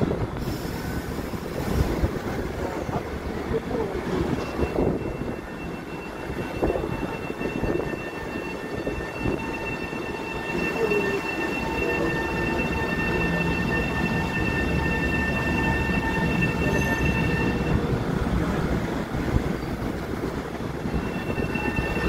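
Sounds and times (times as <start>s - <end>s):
train low rumble: 0.0s - 22.0s
steady high-pitched tones: 4.2s - 18.0s, 20.7s - 22.0s.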